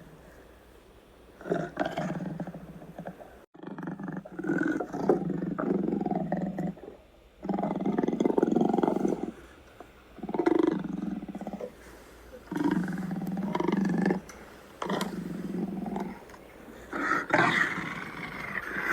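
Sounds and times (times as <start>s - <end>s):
big cat roaring: 12.5s - 16.3s, 16.9s - 18.9s.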